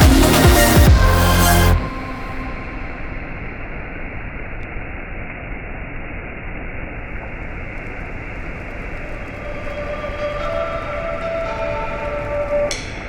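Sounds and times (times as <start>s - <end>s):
steady rushing noise: 1.8s - 13.0s
faint held musical tones: 7.0s - 13.0s.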